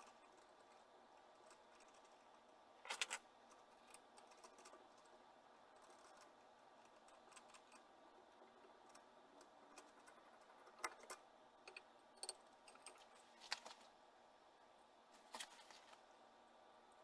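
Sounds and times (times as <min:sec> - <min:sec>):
faint clicks and taps: 0:08.6 - 0:13.9.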